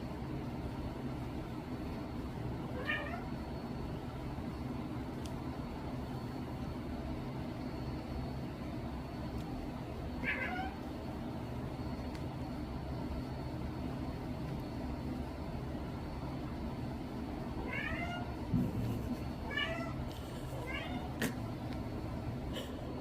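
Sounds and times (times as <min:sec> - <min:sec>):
low background hum: 0:00.0 - 0:23.0
cat meowing: 0:02.8 - 0:03.3, 0:10.2 - 0:10.8, 0:17.6 - 0:18.4, 0:19.5 - 0:21.2.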